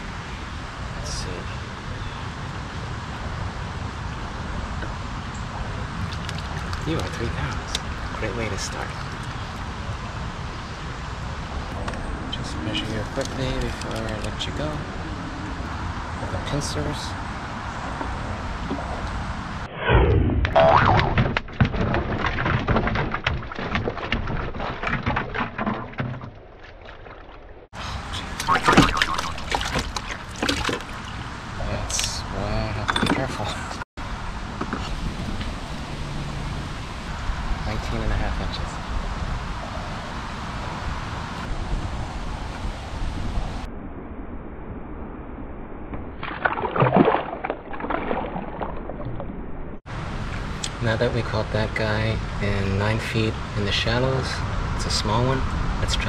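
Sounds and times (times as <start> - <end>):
low haze of water and wind: 0.0 - 19.7, 21.6 - 56.0
fish splashing and thrashing: 5.9 - 9.9, 20.6 - 31.6, 46.1 - 49.6
fish splashing in bucket: 28.2 - 31.4, 46.2 - 49.1.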